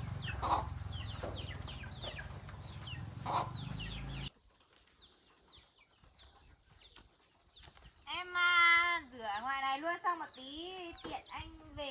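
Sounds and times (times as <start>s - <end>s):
low motor hum: 0.0s - 4.3s
chickens clucking: 0.0s - 7.8s
chicks peeping: 0.0s - 7.8s.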